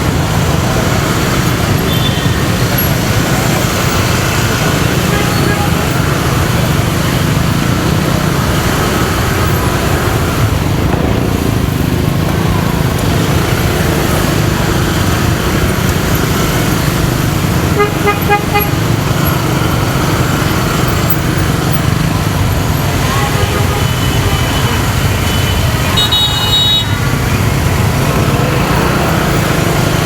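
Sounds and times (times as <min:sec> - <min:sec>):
motorcycle engine and road rumble: 0:00.0 - 0:30.0
vehicle horn toots: 0:17.7 - 0:18.8, 0:23.0 - 0:27.2.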